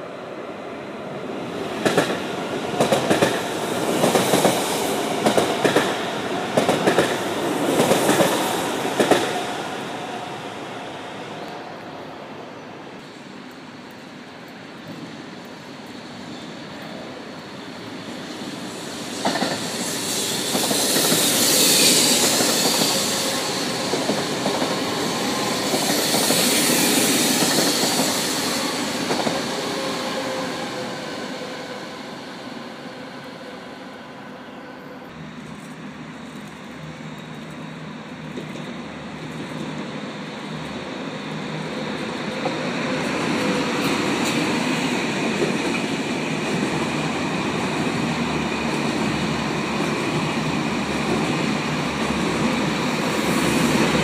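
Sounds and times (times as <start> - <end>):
high-speed train rumbling past: 0.0 - 54.0
train wheels squealing and clacking: 14.8 - 33.6.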